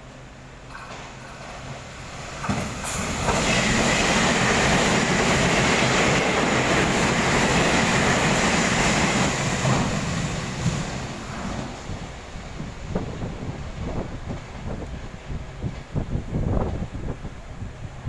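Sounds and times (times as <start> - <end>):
train wheels rushing on rail: 0.2 - 18.0.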